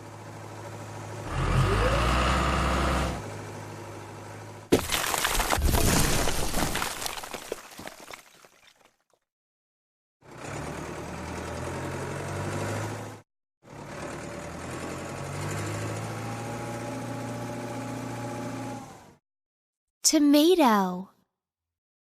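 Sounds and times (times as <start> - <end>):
cartoon heavy machine engine: 0.0 - 4.7, 10.2 - 19.2.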